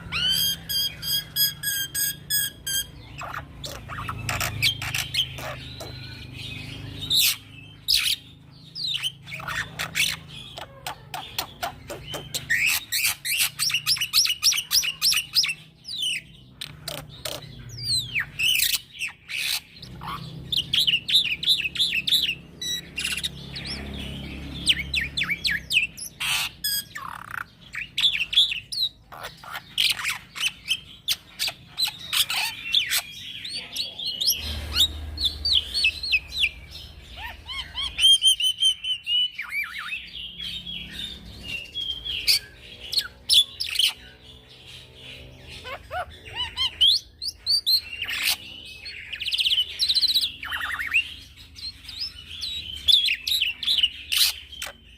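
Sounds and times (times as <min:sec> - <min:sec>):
starling singing: 0:00.0 - 0:54.9.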